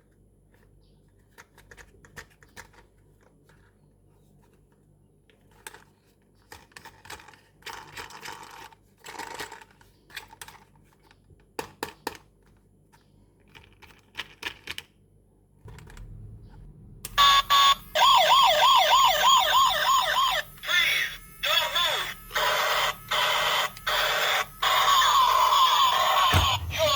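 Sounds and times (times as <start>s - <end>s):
toy police siren warbling: 17.1s - 26.9s.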